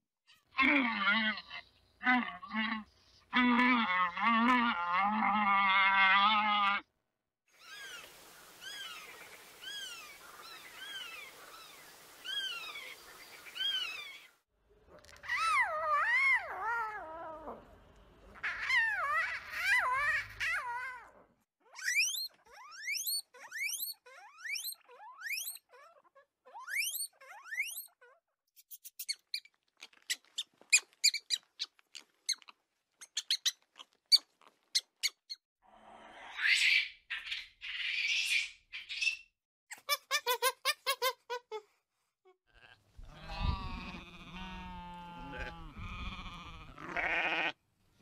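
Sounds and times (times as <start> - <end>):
mouse squeaks and chirps: 21.6 - 35.4
squirrel monkeys chirping: 21.7 - 35.4
lion cub mewing: 42.5 - 47.5.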